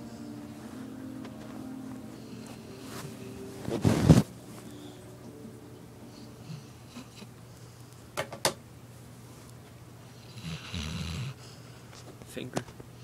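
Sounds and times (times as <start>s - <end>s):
dog snoring: 10.2s - 11.5s.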